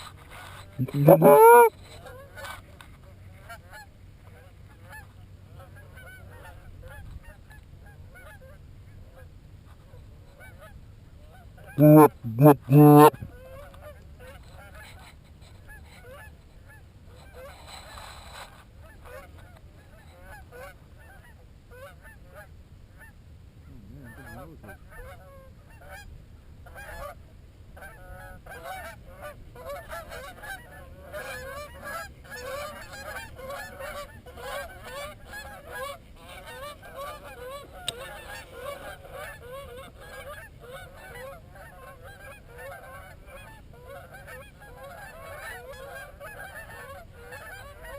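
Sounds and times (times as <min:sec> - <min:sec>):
geese honking: 0:00.3 - 0:01.7, 0:11.8 - 0:13.3, 0:27.8 - 0:47.9.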